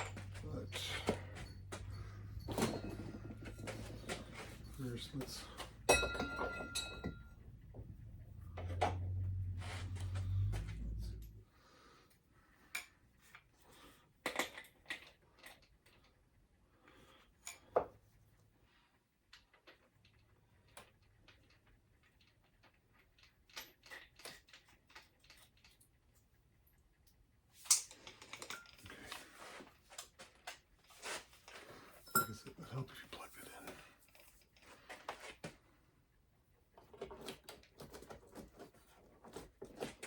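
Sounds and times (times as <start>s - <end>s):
tools and parts clinking: 0.0s - 11.4s, 27.6s - 35.4s.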